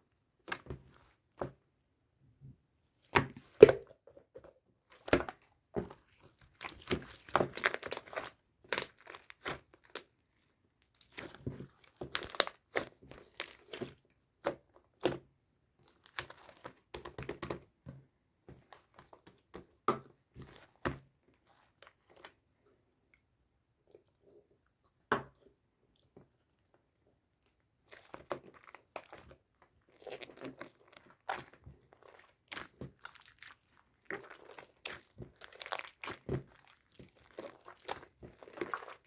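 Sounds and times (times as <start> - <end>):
slime crackling and popping: 6.5 - 10.1, 10.9 - 13.9, 29.9 - 39.0.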